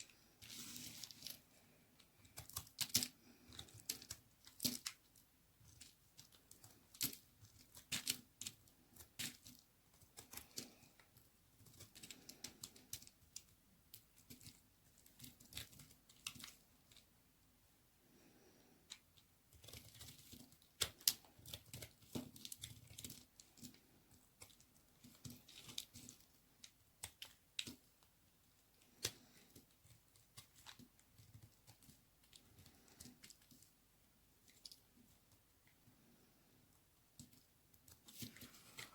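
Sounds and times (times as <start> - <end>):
knife cutting soap: 0.0 - 17.1.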